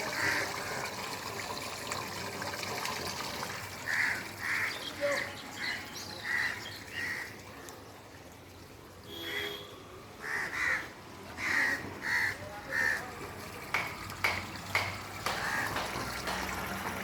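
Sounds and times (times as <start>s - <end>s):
crows cawing: 3.9s - 4.8s, 10.2s - 13.0s, 15.4s - 15.8s
sharp clicks or knocks: 13.7s - 16.6s.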